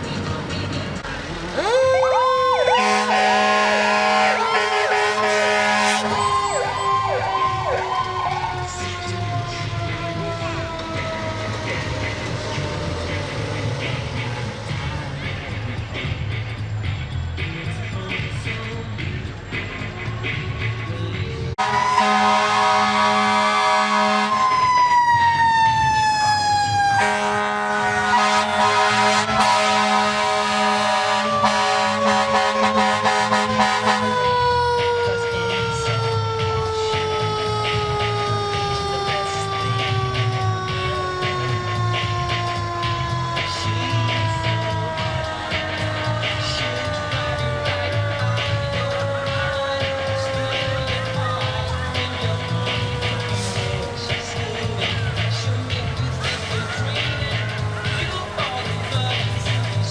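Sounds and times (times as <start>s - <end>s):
fire truck sirens: 0.0s - 59.9s
siren tone falling in pitch: 1.6s - 12.8s
low horn blast: 2.1s - 15.8s, 21.6s - 25.1s, 26.8s - 35.5s
steady low drone: 3.3s - 24.9s, 26.0s - 59.9s
electronic siren cycling: 4.0s - 12.8s.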